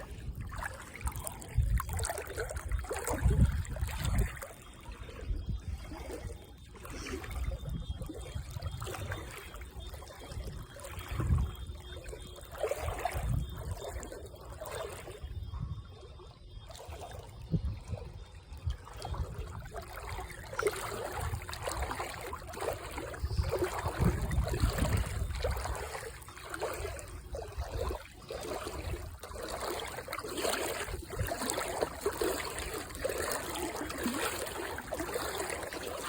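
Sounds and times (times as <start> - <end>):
water trickling and splashing: 0.0 - 36.0.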